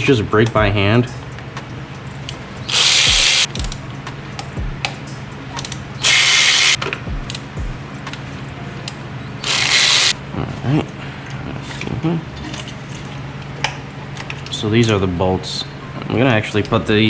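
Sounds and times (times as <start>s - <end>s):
hand ratchet clicking: 0.0s - 10.2s.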